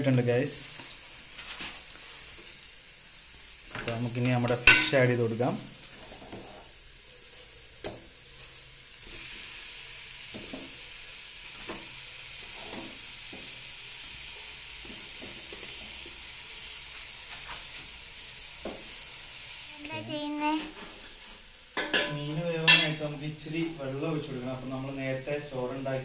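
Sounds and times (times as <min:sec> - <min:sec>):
fish sizzling in a pan: 0:00.0 - 0:26.0.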